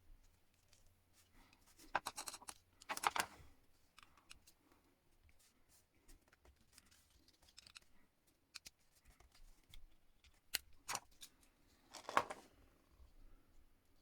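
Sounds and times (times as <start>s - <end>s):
plastic scraping: 11.9s - 12.4s.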